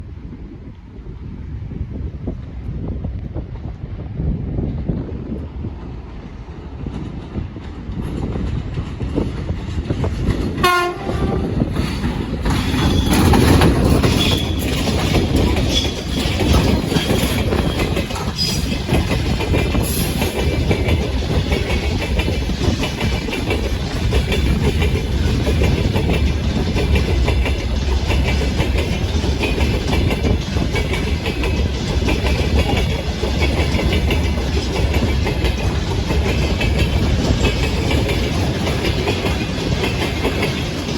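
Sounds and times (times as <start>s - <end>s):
train wheels clattering over rail joints: 5.8s - 40.9s
locomotive horn blast: 10.6s - 11.7s.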